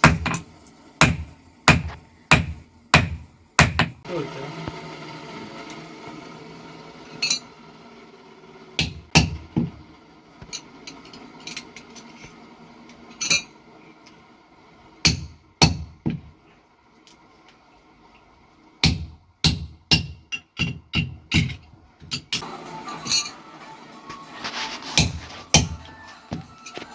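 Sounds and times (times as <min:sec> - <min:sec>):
hammer striking steel on an anvil: 0:00.0 - 0:04.0, 0:08.8 - 0:09.5, 0:15.0 - 0:16.0, 0:18.8 - 0:22.4, 0:25.0 - 0:26.8.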